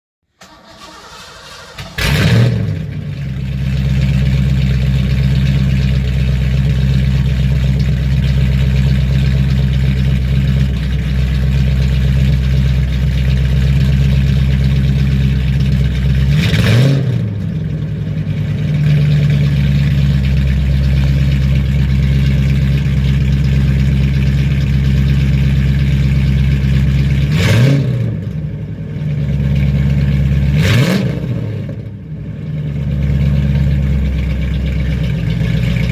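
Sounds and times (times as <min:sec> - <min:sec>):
car engine idling loudly: 0:00.8 - 0:35.9
engine revving blips: 0:16.3 - 0:17.4, 0:27.2 - 0:28.4, 0:30.5 - 0:31.9.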